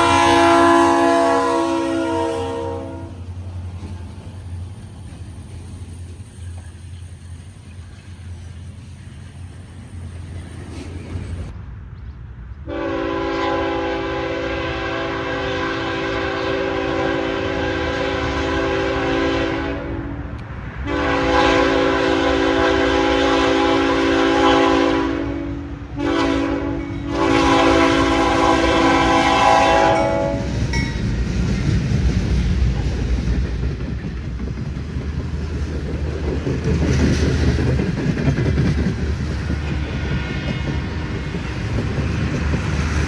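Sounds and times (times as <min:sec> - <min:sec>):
locomotive air horn: 0:00.0 - 0:03.3, 0:12.7 - 0:30.7, 0:39.6 - 0:41.6
train rumbling past: 0:00.0 - 0:43.0.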